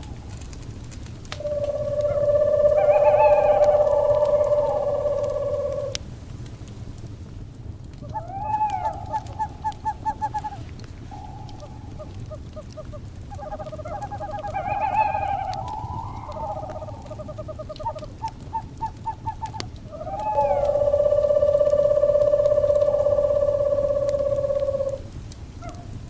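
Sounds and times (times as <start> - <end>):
owls calling: 0.0 - 0.5, 1.3 - 6.0, 8.0 - 25.9
faint fire crackles: 0.0 - 26.0.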